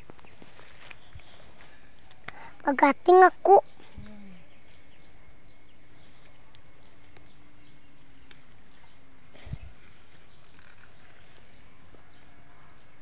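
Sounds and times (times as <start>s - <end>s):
small bird chirping: 2.0s - 12.3s.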